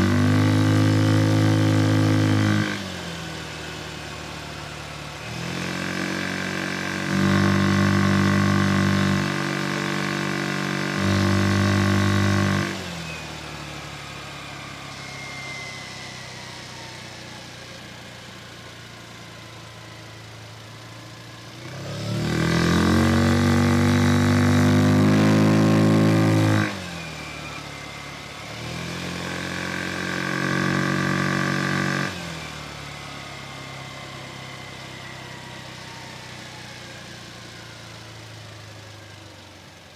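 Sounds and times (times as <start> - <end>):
scooter engine revving: 0.0 - 15.0, 20.6 - 34.0.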